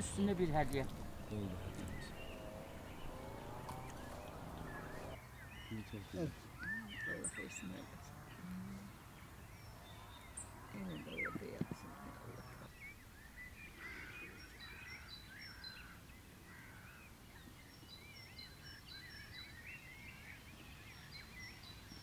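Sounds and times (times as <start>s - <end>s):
low background rumble: 0.0s - 5.2s
small birds chirping: 0.0s - 22.0s.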